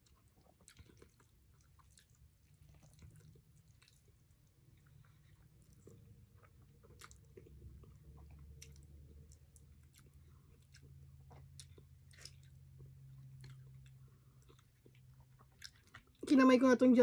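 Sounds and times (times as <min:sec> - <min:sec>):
faint chewing: 0:00.0 - 0:16.3.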